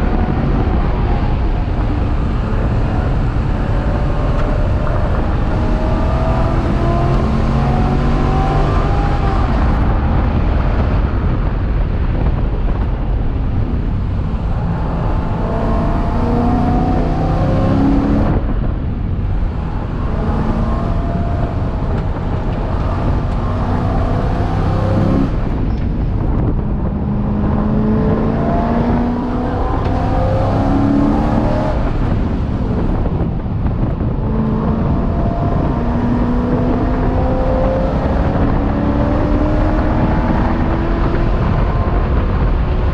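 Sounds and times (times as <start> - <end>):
race car engine running hard: 0.0 - 42.9.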